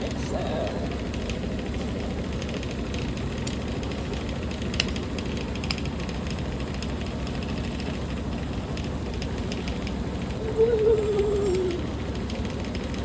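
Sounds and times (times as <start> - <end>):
washing machine spinning: 0.0 - 13.0.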